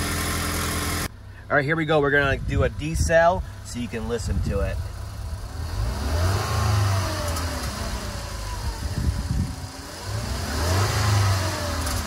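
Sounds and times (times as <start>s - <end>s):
car engine revving: 4.8s - 12.0s.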